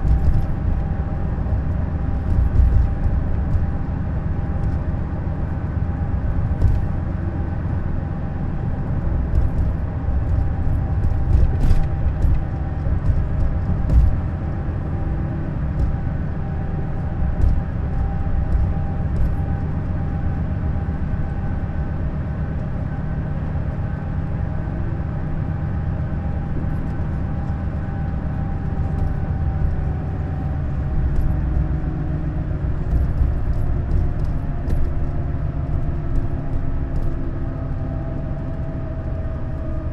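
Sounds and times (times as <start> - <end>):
rattles and knocks: 0.0 - 5.1, 6.2 - 7.6, 8.7 - 20.0, 26.4 - 39.8
coach engine and road rumble: 0.0 - 39.9.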